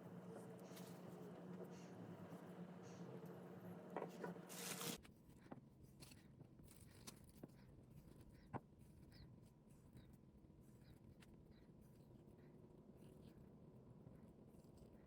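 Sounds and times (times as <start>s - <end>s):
faint steady hum: 0.0s - 5.0s
brief rustle: 4.3s - 5.0s.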